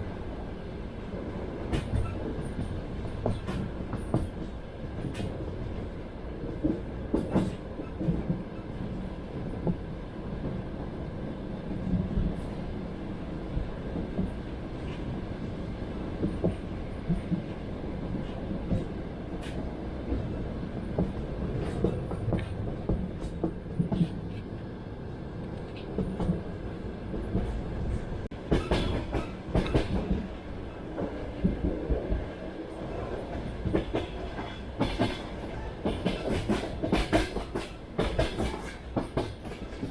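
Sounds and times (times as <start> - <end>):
train rumble: 0.0 - 39.9
wheels clacking over rail joints: 28.3 - 32.3.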